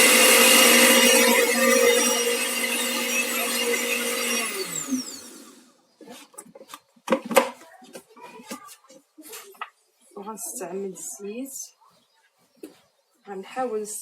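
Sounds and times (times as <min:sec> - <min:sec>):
blender motor running: 0:00.0 - 0:05.7.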